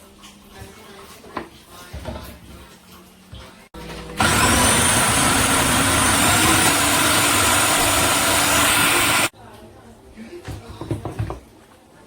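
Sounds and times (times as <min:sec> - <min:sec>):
small electric motor whining: 0:04.2 - 0:09.3.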